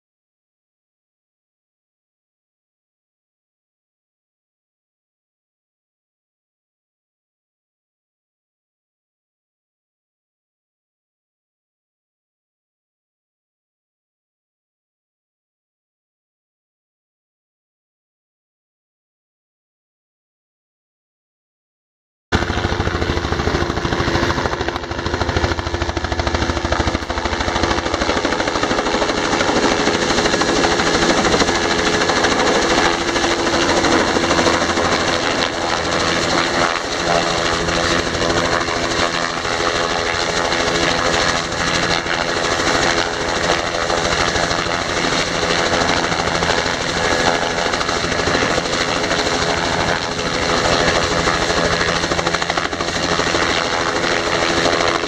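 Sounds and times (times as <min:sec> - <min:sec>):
helicopter engine tone: 0:22.4 - 0:55.0
helicopter rotor chop: 0:22.4 - 0:55.0.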